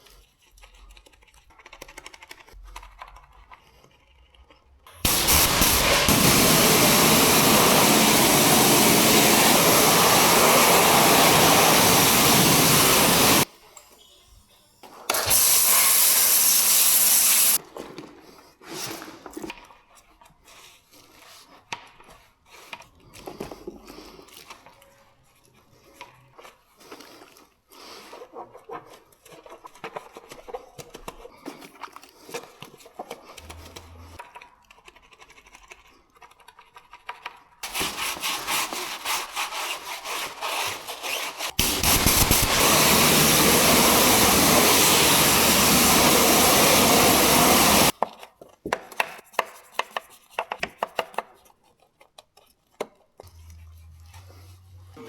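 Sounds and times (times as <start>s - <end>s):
loud steady machine noise: 5.1s - 13.4s, 41.6s - 47.9s
scrubbing and rubbing: 37.6s - 41.6s.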